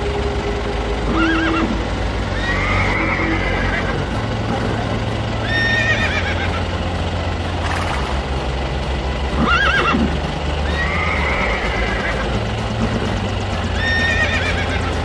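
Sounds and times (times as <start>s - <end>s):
steady low hum: 0.0s - 15.0s
horse whinnying: 1.1s - 4.1s, 5.4s - 6.6s, 9.4s - 12.4s, 13.8s - 14.9s.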